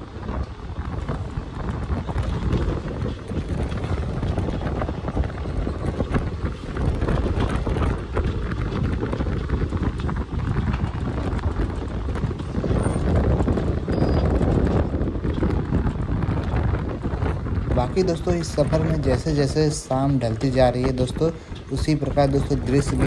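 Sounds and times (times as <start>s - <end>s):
train wheels rumbling and knocking: 0.0s - 23.0s
wind buffeting microphone: 0.0s - 23.0s.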